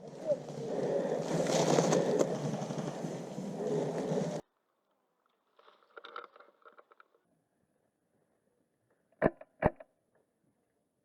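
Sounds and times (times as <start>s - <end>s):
rustling and scraping: 0.0s - 4.4s.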